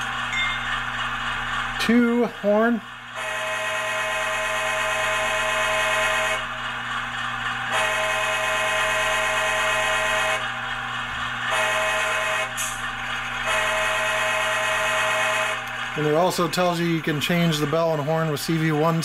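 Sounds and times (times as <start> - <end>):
diesel engine idling: 0.0 - 19.0
model locomotive horn blasts: 7.8 - 9.8, 11.6 - 12.5.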